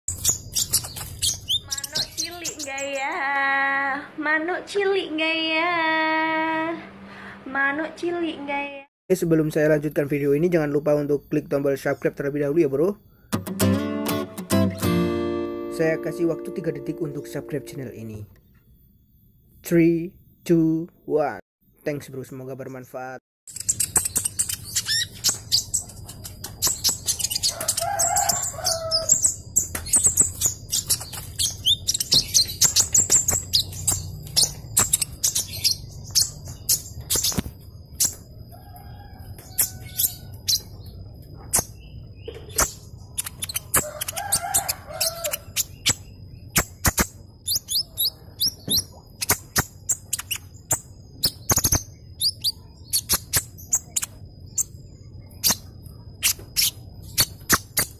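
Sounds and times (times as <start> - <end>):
bird chirping and twittering: 0.1 - 3.4, 23.5 - 57.9
rooster crowing: 27.4 - 29.2, 38.5 - 40.5, 43.8 - 45.5.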